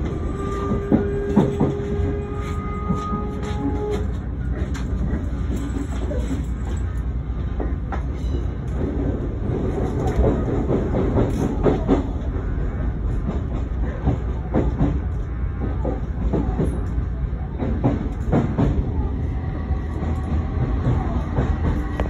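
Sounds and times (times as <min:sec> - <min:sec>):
wheels clicking over rail joints: 0:00.0 - 0:12.4
electric train rumbling: 0:00.0 - 0:22.0.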